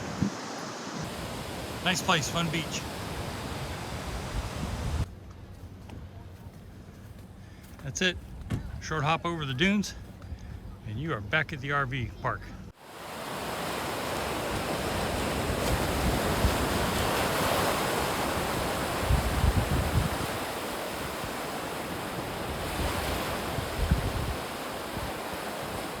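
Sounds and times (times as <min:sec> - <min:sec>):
ocean surf washing ashore: 0:00.0 - 0:05.1, 0:12.7 - 0:26.0
wind buffeting microphone: 0:02.8 - 0:05.1, 0:14.1 - 0:26.0.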